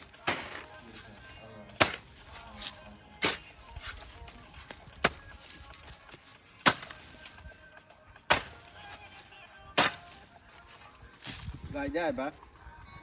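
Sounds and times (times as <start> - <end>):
hoe chopping into soil: 0.0 - 1.0, 1.7 - 7.4, 8.3 - 10.3, 11.2 - 11.6.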